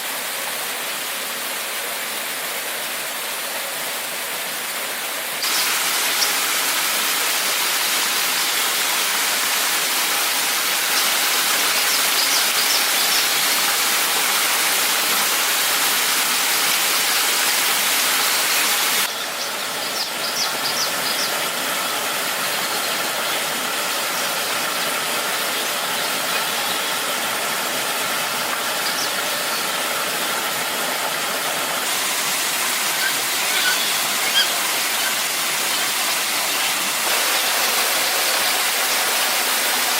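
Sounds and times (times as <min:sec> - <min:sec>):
waterfall rushing: 0:05.4 - 0:19.1, 0:23.1 - 0:39.9.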